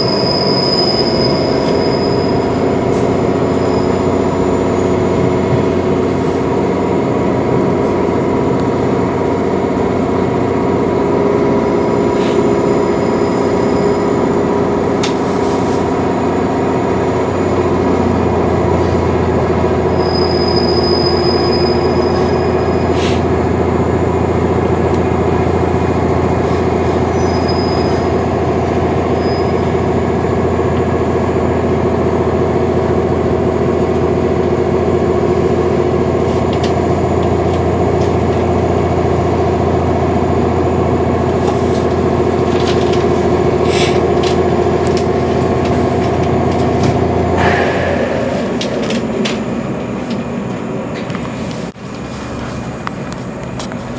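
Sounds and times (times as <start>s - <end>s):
high squeal: 0.0s - 5.1s, 11.6s - 14.6s, 19.8s - 22.9s, 27.0s - 28.3s
electric train running noise: 29.8s - 53.9s
deep hum: 47.2s - 51.0s.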